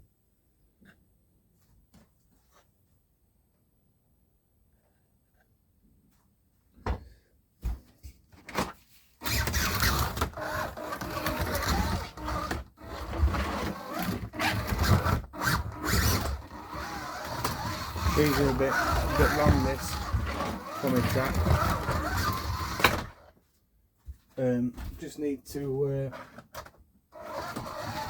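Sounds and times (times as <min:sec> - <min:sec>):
small electric motor whining: 0:09.2 - 0:23.2, 0:27.2 - 0:28.0
toy car rattling along track: 0:09.2 - 0:23.2, 0:27.2 - 0:28.0.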